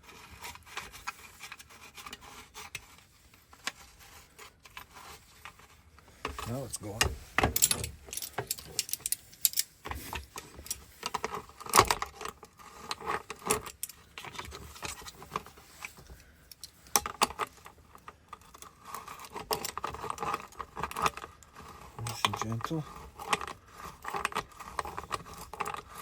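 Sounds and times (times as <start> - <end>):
metallic clicks of lock parts: 7.4 - 9.7.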